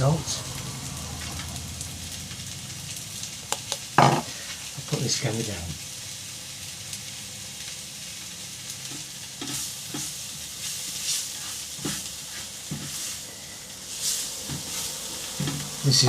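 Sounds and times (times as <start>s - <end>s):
onions sizzling in a frying pan: 0.0s - 16.0s
spatula stirring and scraping: 8.8s - 15.8s.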